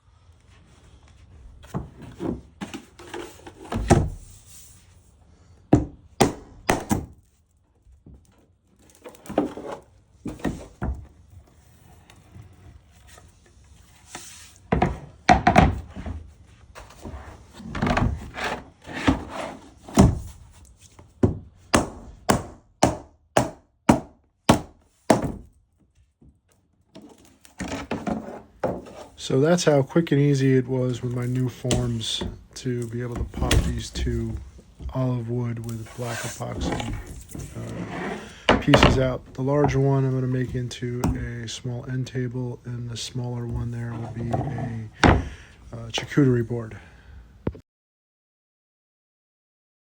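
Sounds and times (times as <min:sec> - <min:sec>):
wooden knocks and rubbing: 0:31.1 - 0:41.4, 0:43.5 - 0:45.4.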